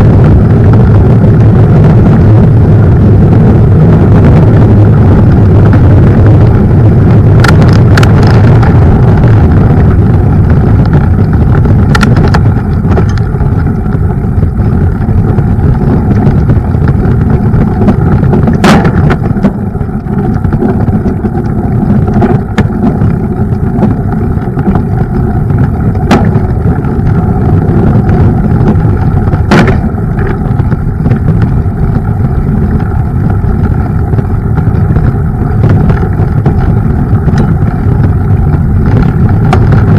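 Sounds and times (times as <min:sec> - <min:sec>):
wind and tyre noise: 0:00.0 - 0:39.9
bike knocks and rattles: 0:05.3 - 0:39.9.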